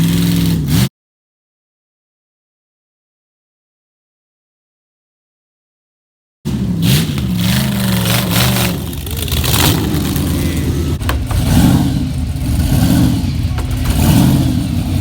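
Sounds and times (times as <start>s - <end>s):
drag car engine idling roughly: 7.0s - 15.0s.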